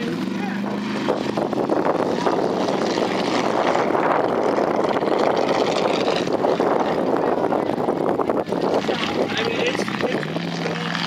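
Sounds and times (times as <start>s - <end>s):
truck engine running hard: 0.0s - 11.0s.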